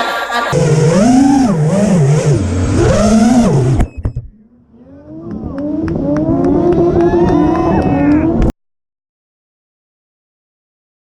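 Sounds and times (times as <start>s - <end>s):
car engine revving: 0.4s - 8.5s.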